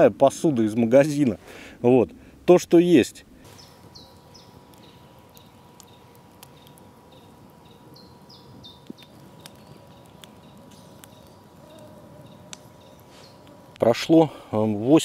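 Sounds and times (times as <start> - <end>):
campfire crackling: 0.0 - 15.0
birds chirping: 3.4 - 15.0.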